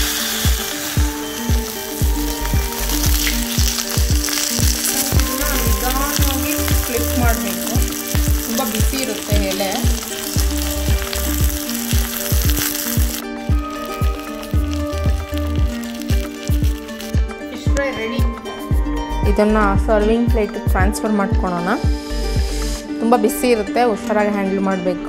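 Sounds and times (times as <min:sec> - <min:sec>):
oil sizzling under frying fish: 0:00.0 - 0:17.5
background music with steady beat: 0:00.0 - 0:25.0.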